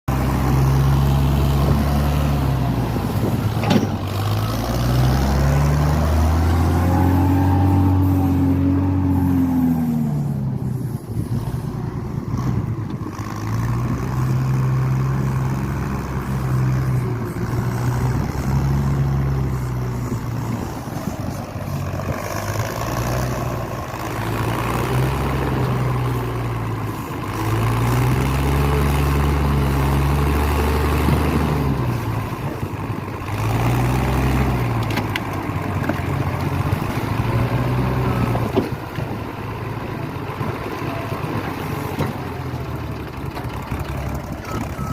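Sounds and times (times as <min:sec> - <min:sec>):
forklift engine revving: 0:00.1 - 0:44.9.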